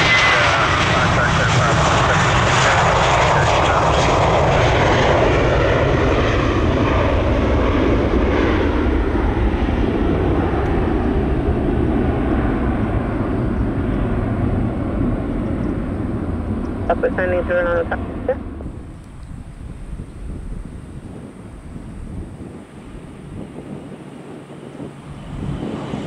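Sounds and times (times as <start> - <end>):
jet airliner engines passing: 0.0 - 26.0.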